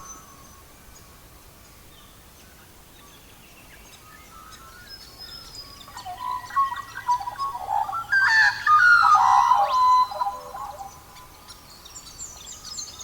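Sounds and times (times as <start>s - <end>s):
birds chirping and singing: 3.0s - 13.0s.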